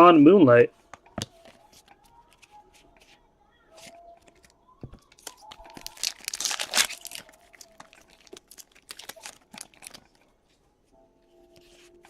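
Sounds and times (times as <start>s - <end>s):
cards rustling and clicking: 0.9s - 10.4s
wrapper crinkling and tearing: 3.8s - 10.2s.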